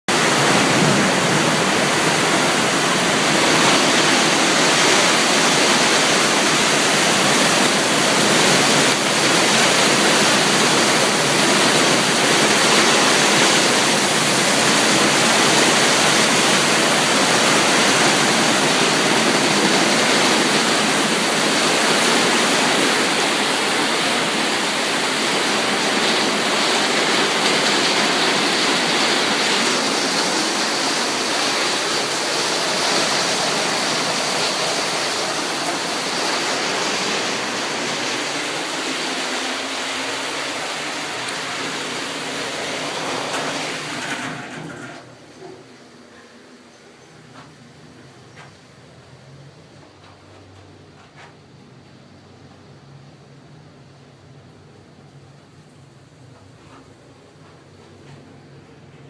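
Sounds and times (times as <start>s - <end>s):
heavy rain pouring: 0.1s - 46.6s.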